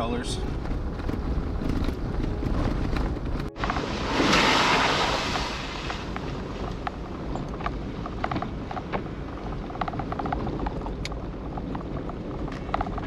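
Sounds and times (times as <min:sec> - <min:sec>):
vehicle driving on gravel: 0:00.0 - 0:13.0
brief rush of noise: 0:03.6 - 0:06.1.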